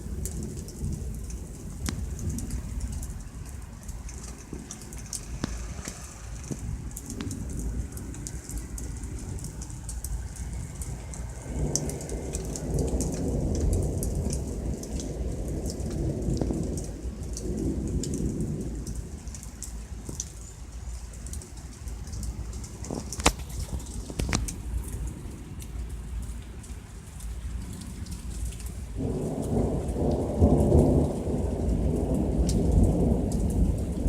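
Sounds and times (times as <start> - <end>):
thunder rolling: 0.0 - 19.4, 28.8 - 34.0
rain falling: 0.0 - 34.0
raindrop ticks: 0.0 - 34.0.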